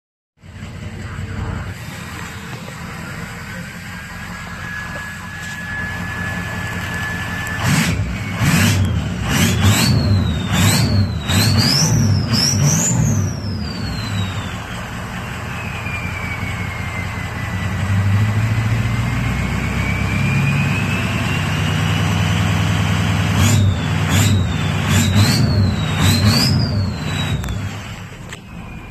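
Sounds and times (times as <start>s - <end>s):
engine revving in blips: 1.0s - 28.9s
turbo whistle: 3.0s - 28.9s.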